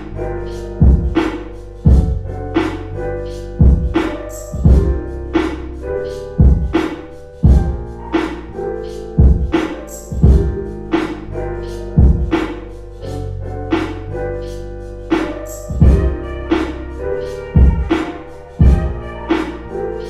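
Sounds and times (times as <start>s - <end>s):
lo-fi hip-hop instrumental: 0.0s - 20.0s.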